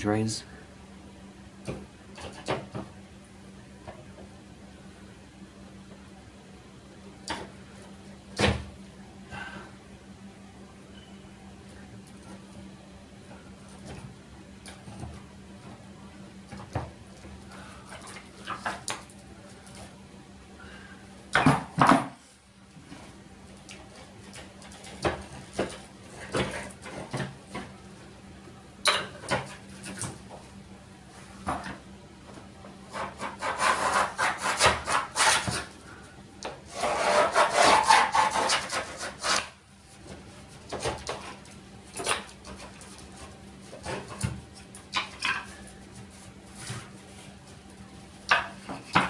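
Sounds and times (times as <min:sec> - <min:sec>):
tool scraping tiles: 0:32.9 - 0:35.7, 0:36.7 - 0:39.5.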